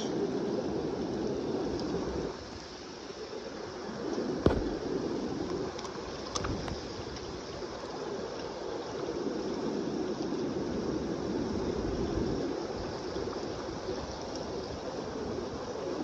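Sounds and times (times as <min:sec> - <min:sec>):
sharp knock: 0:04.5 - 0:04.8.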